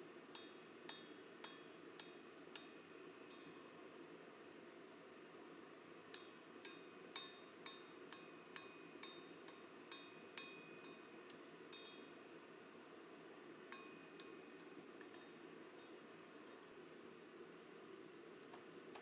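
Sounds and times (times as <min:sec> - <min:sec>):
steady low hiss: 0:00.0 - 0:19.0.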